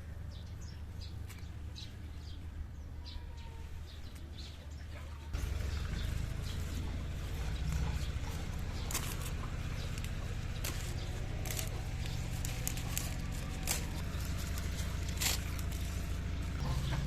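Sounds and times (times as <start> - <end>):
steady low hum: 5.3 - 17.0
sharp clicks and crackles: 7.5 - 16.7.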